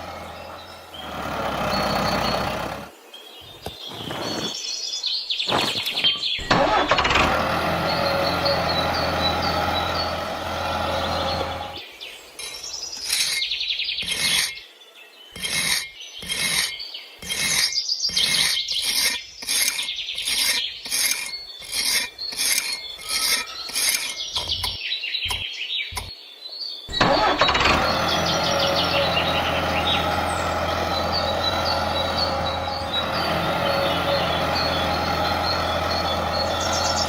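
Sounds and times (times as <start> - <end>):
motor-like hum: 0.0 - 2.9, 6.4 - 11.8, 26.9 - 37.0
rasping scraping strokes: 12.4 - 14.6, 15.4 - 25.4.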